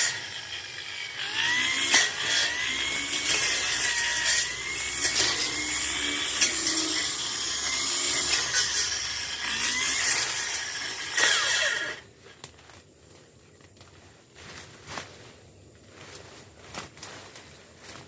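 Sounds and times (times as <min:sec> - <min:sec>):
brush cutter engine whining: 0:00.0 - 0:12.5.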